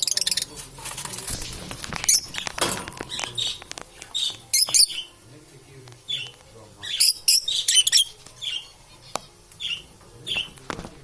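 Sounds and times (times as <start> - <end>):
lovebirds chirping: 0.0 - 0.6, 2.0 - 5.2, 5.8 - 10.6.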